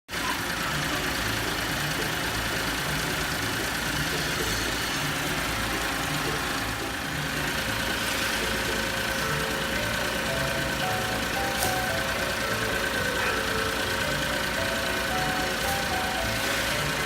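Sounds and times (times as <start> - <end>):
small engine idling: 0.1 - 17.0.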